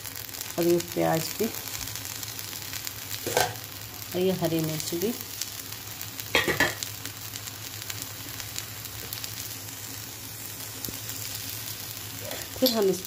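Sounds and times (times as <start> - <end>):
oil sizzling and crackling: 0.0 - 13.0.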